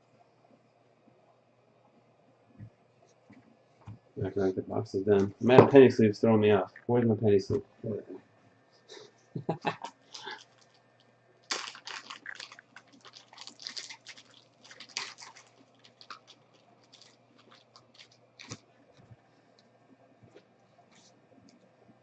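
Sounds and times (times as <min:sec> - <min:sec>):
plastic sleeves crinkling: 0:09.9 - 0:19.6.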